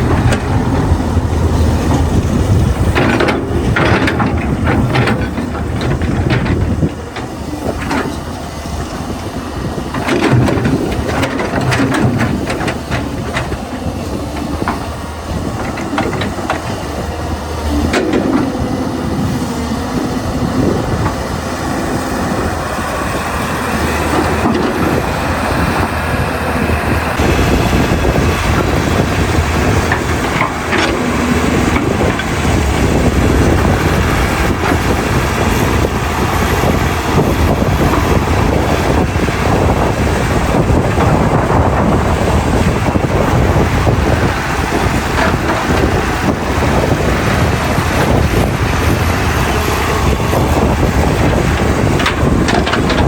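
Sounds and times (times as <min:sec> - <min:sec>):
metal clanking and rattling: 0:00.0 - 0:08.4, 0:09.9 - 0:16.8, 0:17.7 - 0:21.3, 0:50.1 - 0:53.0
excavator diesel engine running: 0:00.0 - 0:53.0.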